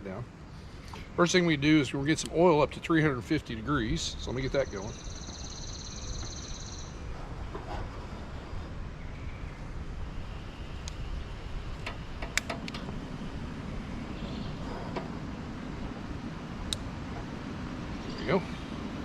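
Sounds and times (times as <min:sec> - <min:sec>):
low outdoor rumble: 0:00.0 - 0:19.0
stove igniter clicks: 0:10.8 - 0:11.0, 0:11.7 - 0:13.0, 0:16.6 - 0:16.9.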